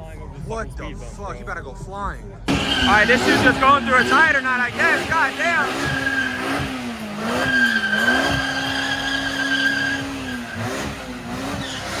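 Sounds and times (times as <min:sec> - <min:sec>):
engine at high revs: 0:02.5 - 0:12.0
tires squealing in a burnout: 0:02.5 - 0:12.0.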